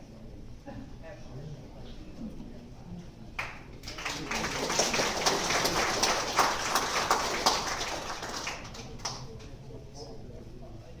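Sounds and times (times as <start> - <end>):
audience applauding: 3.4 - 9.3.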